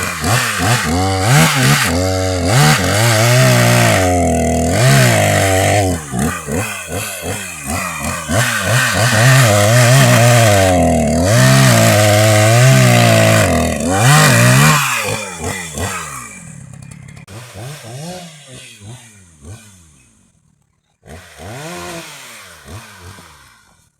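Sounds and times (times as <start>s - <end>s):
chainsaw cutting wood: 0.0s - 23.9s.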